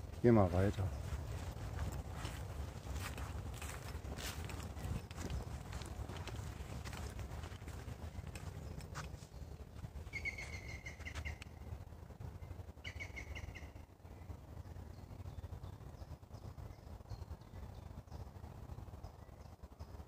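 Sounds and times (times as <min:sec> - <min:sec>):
low steady rumble: 0:00.0 - 0:20.0
songbird singing repeated notes: 0:07.4 - 0:11.7, 0:12.8 - 0:13.8.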